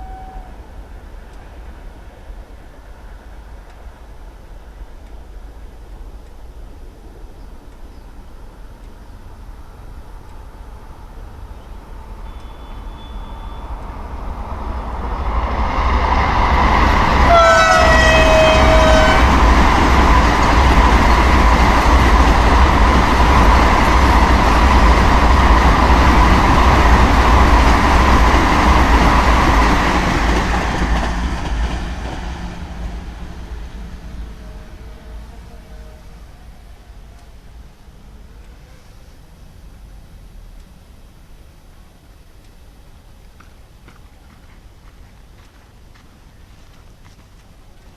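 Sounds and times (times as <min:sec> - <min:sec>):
locomotive horn blast: 0:00.0 - 0:00.6, 0:17.2 - 0:19.6, 0:34.0 - 0:37.2
train passing rumble: 0:00.0 - 0:47.9.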